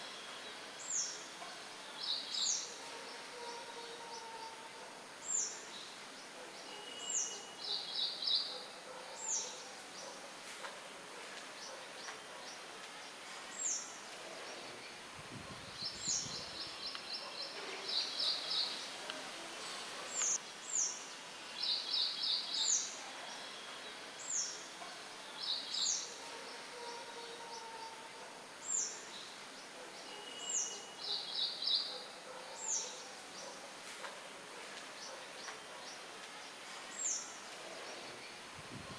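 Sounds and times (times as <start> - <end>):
songbirds chirping: 0.0 - 38.9
wind hiss: 15.0 - 16.9, 38.3 - 38.9.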